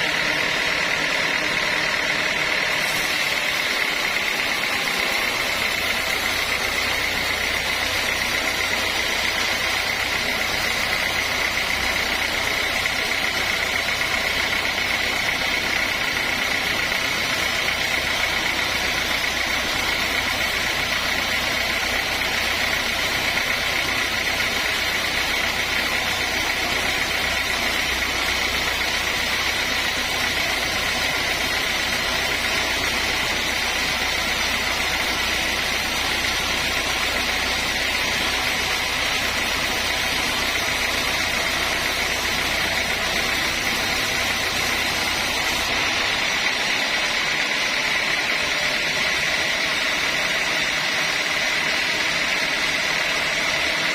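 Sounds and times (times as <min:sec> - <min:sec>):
sawmill machinery whining: 0:00.0 - 0:53.9.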